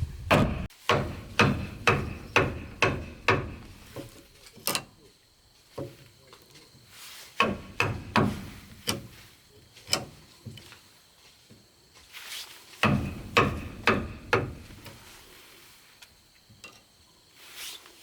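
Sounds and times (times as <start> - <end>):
hammer striking wood: 0.3 - 4.1, 7.4 - 9.0, 12.8 - 14.8.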